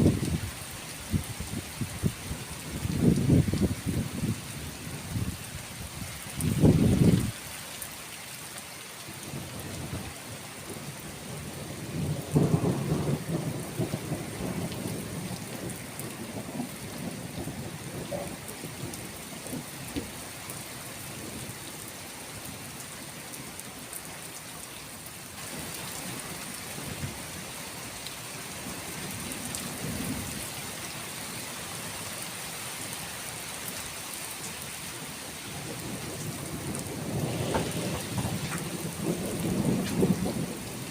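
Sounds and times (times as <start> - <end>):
rain hissing: 0.0 - 40.9
rolling thunder rumble: 11.3 - 20.2, 35.5 - 40.9
thunder crack: 36.6 - 40.6.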